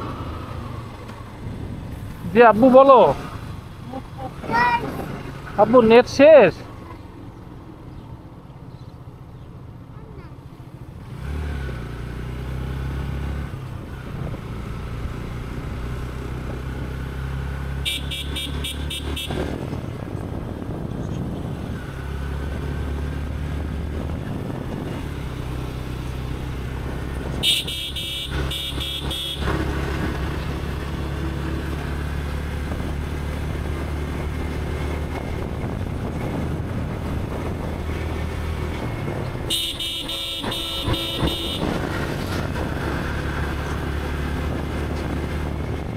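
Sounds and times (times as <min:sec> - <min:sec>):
horn tooting: 0:17.8 - 0:19.8, 0:27.3 - 0:30.0, 0:39.4 - 0:42.7
motorcycle engine running: 0:23.9 - 0:45.9.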